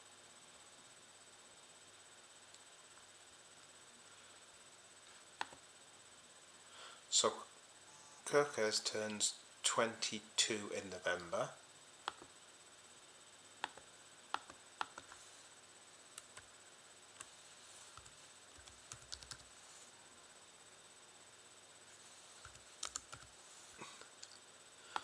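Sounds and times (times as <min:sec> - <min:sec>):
laptop keys typing: 0:05.4 - 0:05.6, 0:12.0 - 0:12.3, 0:13.6 - 0:15.2, 0:16.2 - 0:16.5, 0:17.2 - 0:19.6, 0:21.9 - 0:24.4.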